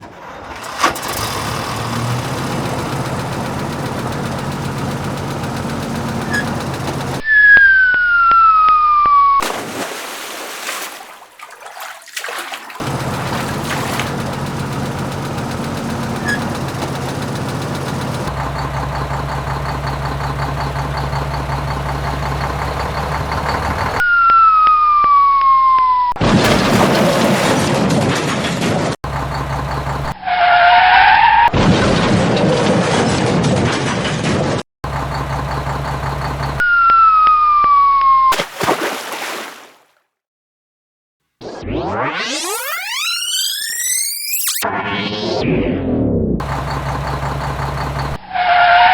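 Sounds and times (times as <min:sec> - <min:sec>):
heavy vehicle engine running: 0:00.0 - 0:07.2, 0:12.8 - 0:24.0, 0:26.4 - 0:30.2, 0:34.0 - 0:36.6, 0:46.4 - 0:48.2
loud falling whistle tone: 0:07.2 - 0:09.6, 0:24.0 - 0:26.2, 0:36.6 - 0:38.4, 0:41.4 - 0:45.7
bursts of noise: 0:41.4 - 0:45.8.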